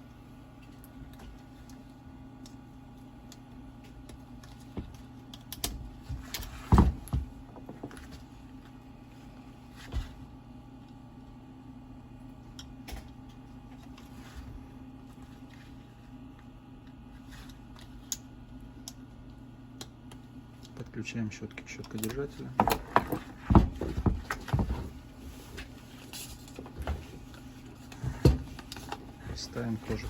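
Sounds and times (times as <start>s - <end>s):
steady low hum: 0.0s - 30.0s
small parts clicking and tapping: 3.2s - 5.8s.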